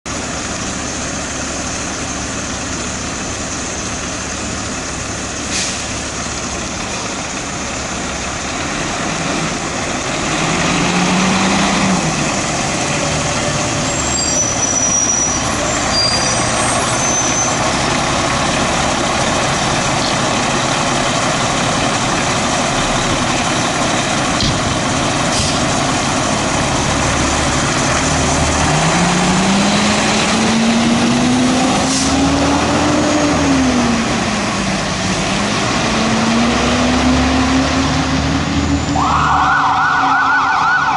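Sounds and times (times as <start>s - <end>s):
diesel engine accelerating: 0.1s - 40.9s
road traffic noise: 0.1s - 40.9s
short high squeals: 13.9s - 17.6s.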